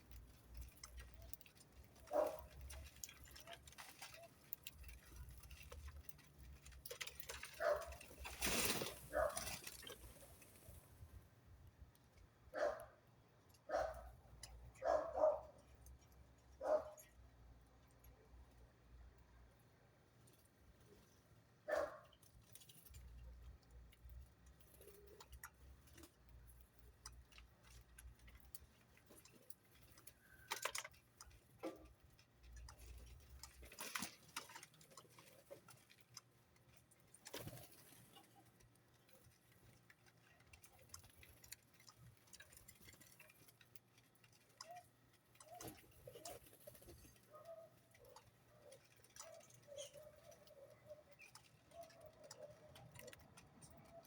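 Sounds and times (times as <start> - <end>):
faint clicks and taps: 21.7 - 54.0.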